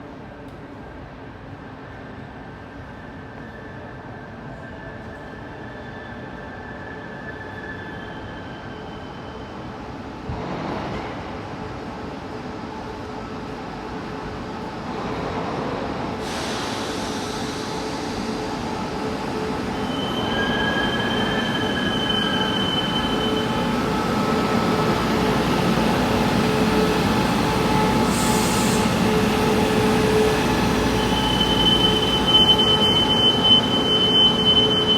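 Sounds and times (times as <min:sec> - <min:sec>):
train running noise: 0:10.0 - 0:34.9
high thin brake squeal: 0:19.7 - 0:24.4, 0:27.7 - 0:34.9.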